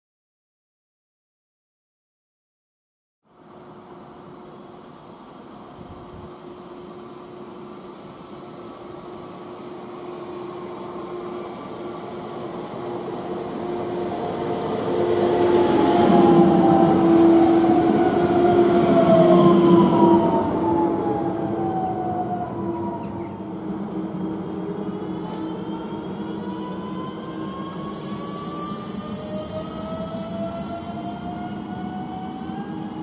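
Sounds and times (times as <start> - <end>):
electric train approaching: 3.3 - 33.0.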